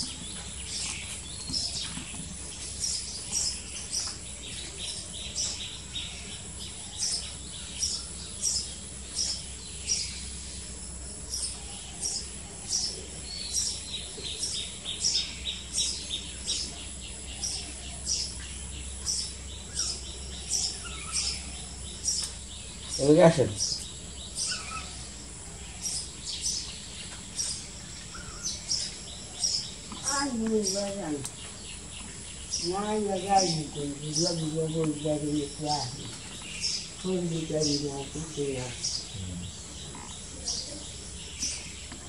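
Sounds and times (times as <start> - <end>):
small bird chirping: 0.0 - 42.0
faint bird trill: 11.3 - 42.0.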